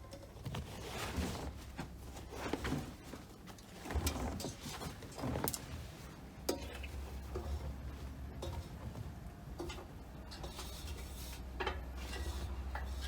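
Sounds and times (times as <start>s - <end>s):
wet laundry tumbling in drum: 0.0s - 10.2s.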